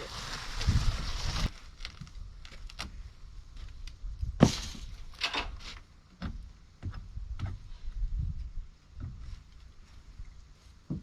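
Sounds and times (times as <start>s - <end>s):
loud thump: 4.4s - 5.0s
knocks and clunks of wood: 4.4s - 7.7s, 9.0s - 9.3s.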